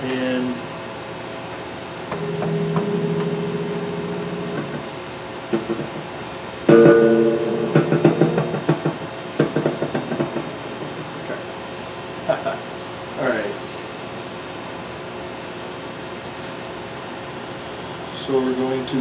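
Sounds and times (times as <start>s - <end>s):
guitar strings plucked: 2.1s - 11.2s.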